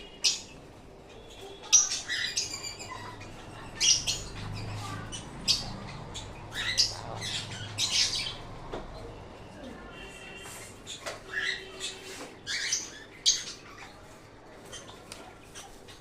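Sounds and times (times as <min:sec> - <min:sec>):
parrot squawking: 0:01.8 - 0:08.7.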